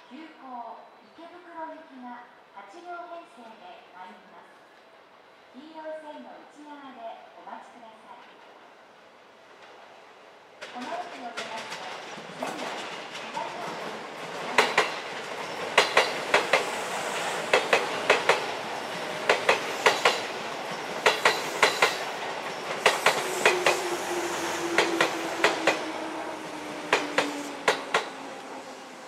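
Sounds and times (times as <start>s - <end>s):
train rolling noise: 8.1s - 29.0s
train wheels clacking over joints: 10.6s - 26.1s, 26.7s - 28.6s.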